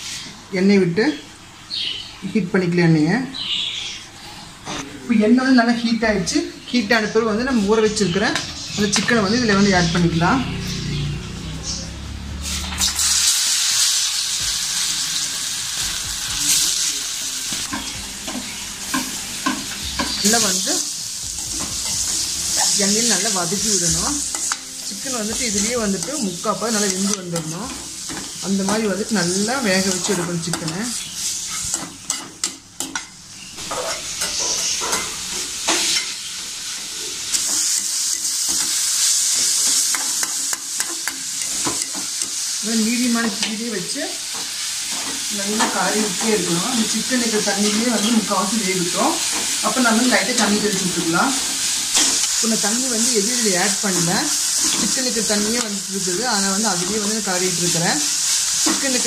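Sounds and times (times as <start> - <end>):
chicken sizzling in hot oil: 0.0 - 0.4, 6.7 - 59.0
metal spoon tapping pan: 17.5 - 20.4, 24.3 - 29.0, 39.7 - 42.4
metal ladle scraping a pan: 33.6 - 36.2.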